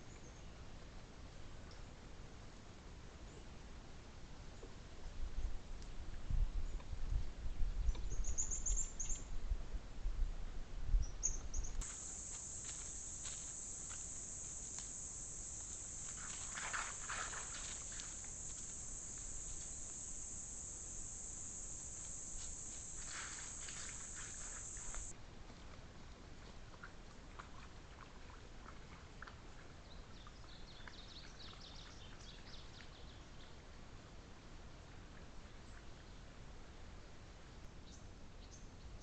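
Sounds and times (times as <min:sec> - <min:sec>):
insects trilling: 0:11.8 - 0:25.1
rustling: 0:11.8 - 0:25.1.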